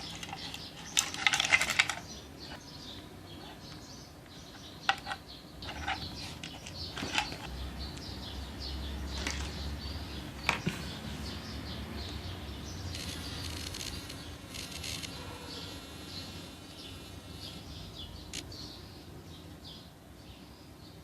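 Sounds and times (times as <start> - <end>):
plastic parts clicking and tapping: 0.0 - 2.2, 4.8 - 7.5
faint high chirping: 0.0 - 21.0.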